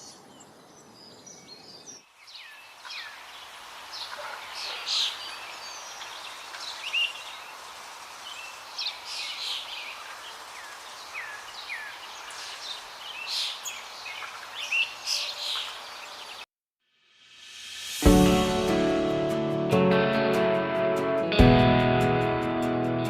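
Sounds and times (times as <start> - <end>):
small birds chirping: 0.0 - 16.5
outdoor hiss: 2.0 - 16.4, 17.0 - 18.8.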